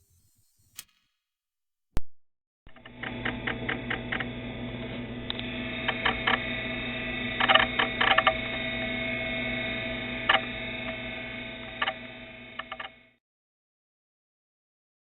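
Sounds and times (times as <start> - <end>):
sharp clicks and ticks: 2.7 - 4.4, 5.3 - 6.5, 7.4 - 8.6, 10.2 - 11.0, 11.7 - 12.0, 12.6 - 13.0
electrical hum: 2.7 - 13.2.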